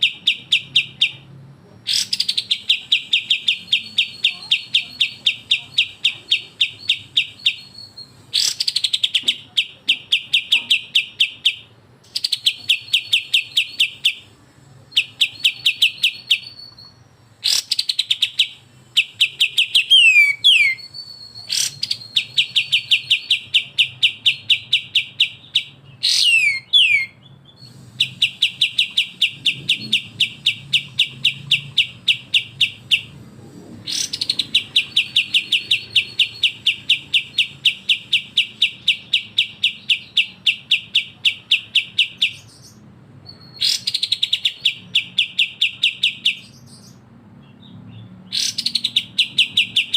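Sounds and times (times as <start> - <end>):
songbird rapid sharp chattering: 1.9 - 14.3, 17.4 - 33.2, 33.8 - 42.8.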